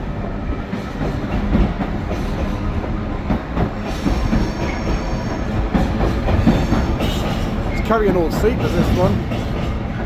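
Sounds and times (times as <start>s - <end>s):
diesel locomotive passing: 0.0s - 10.0s.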